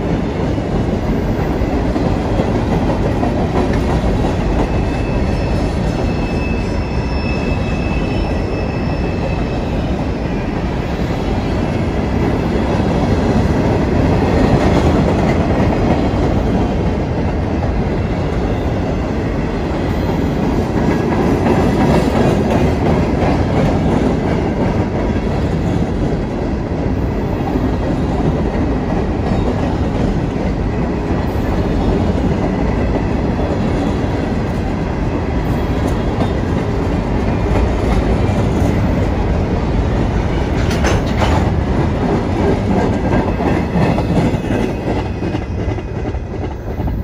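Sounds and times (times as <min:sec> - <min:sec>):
freight train wheels rumbling on rail: 0:00.0 - 0:47.0.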